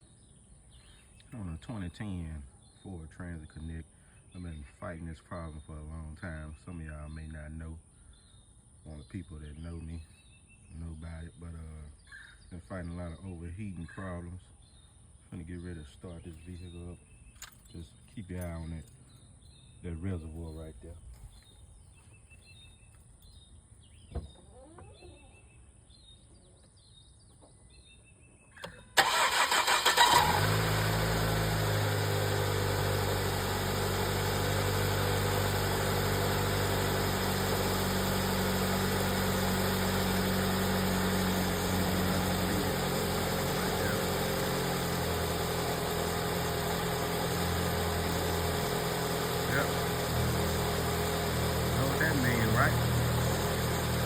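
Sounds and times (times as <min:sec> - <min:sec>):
car engine starting and idling: 0:28.7 - 0:54.0.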